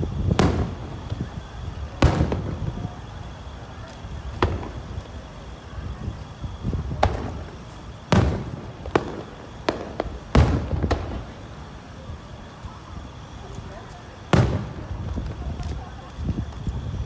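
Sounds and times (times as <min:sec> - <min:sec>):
firework shells bursting: 0:00.0 - 0:03.1, 0:03.7 - 0:05.4, 0:06.4 - 0:11.8.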